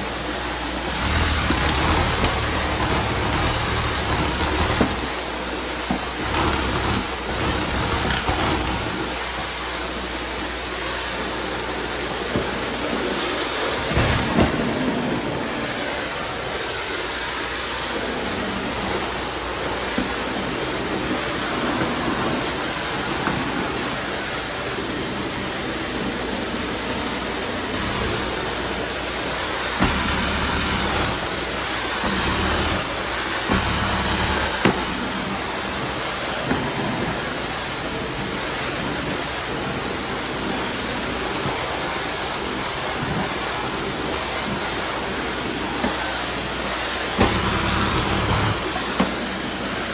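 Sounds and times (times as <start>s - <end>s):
vacuum and spray hissing: 0.0s - 49.9s
sharp clicks or knocks: 5.9s - 9.1s.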